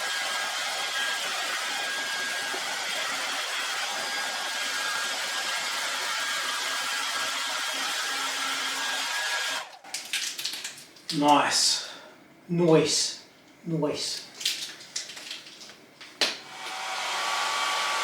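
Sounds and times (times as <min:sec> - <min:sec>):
hot-air blower whining: 0:00.0 - 0:09.7, 0:16.3 - 0:18.0.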